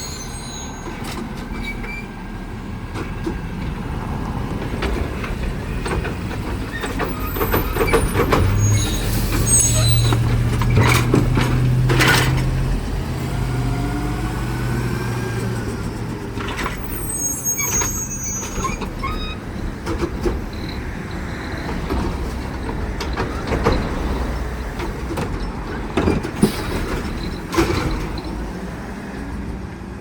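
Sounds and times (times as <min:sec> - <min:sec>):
high metallic squeaks: 0:00.0 - 0:02.1, 0:06.7 - 0:11.0, 0:16.5 - 0:19.5
garbage truck low hum: 0:00.0 - 0:29.7
clanks and knocks: 0:10.1 - 0:12.7, 0:18.4 - 0:28.3.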